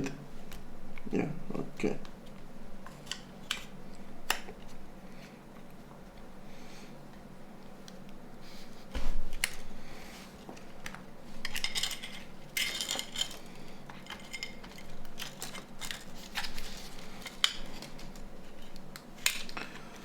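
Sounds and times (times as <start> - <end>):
hand tools clicking and scraping: 11.4 - 19.6.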